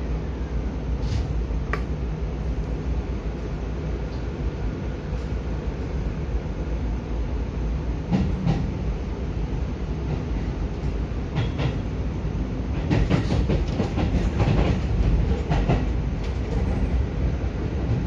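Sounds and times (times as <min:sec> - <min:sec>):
train wheels rumbling: 0:00.8 - 0:18.0
wheels clacking on track: 0:10.0 - 0:11.9, 0:12.8 - 0:17.2.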